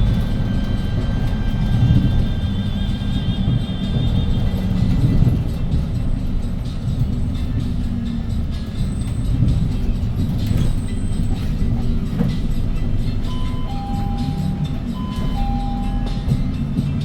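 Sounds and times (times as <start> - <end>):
bus engine running: 0.0 - 17.0
two-note electronic chime: 13.3 - 16.5.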